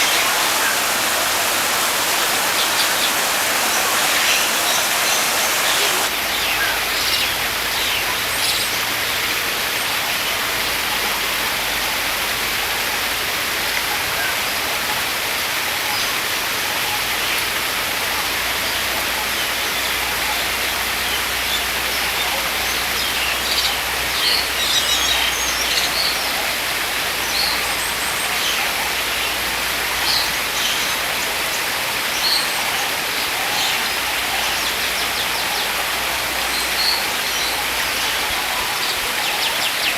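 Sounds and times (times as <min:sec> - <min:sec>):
steady rushing hiss: 0:00.0 - 0:06.1.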